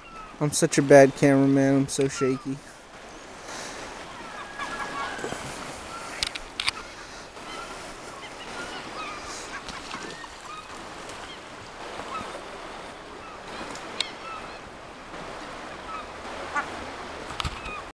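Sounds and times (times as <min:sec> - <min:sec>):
gulls squawking: 0:00.0 - 0:16.9
river rushing: 0:00.0 - 0:17.9.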